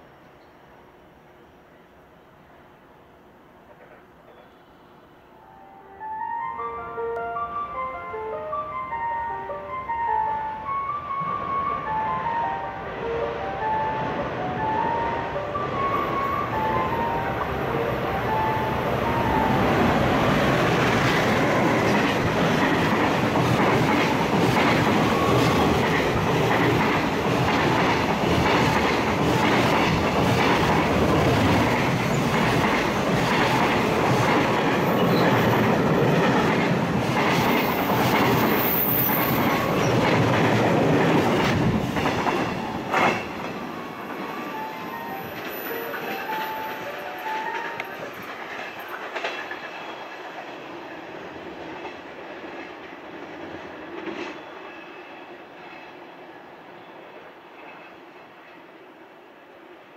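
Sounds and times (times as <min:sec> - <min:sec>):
freight train wheels clattering: 0:20.3 - 0:44.5, 0:45.1 - 0:50.6.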